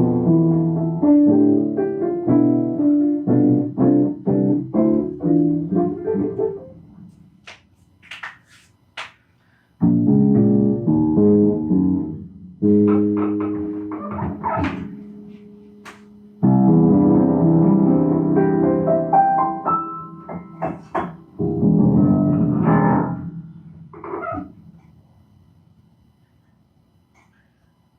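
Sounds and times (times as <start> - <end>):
improvised piano playing: 0.0 - 7.1, 9.8 - 24.7.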